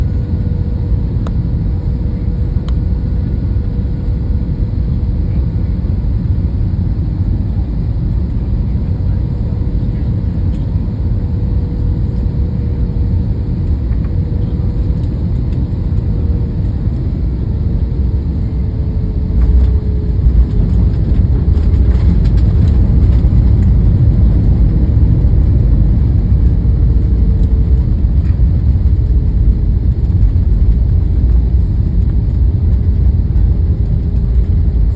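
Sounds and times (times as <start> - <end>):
faint hum: 0.0 - 34.9
low engine drone in cabin: 0.0 - 34.9
wheels rumbling and rattling: 18.8 - 34.9.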